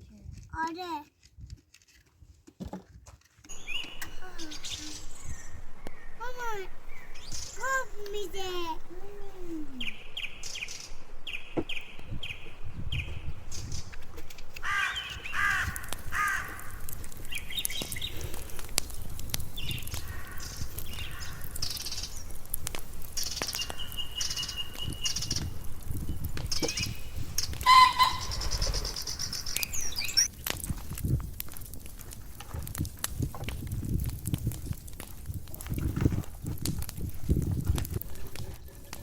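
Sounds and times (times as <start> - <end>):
birds calling and chirping: 3.5 - 30.4
harsh cawing calls: 14.6 - 17.0, 19.9 - 22.2, 27.6 - 29.6.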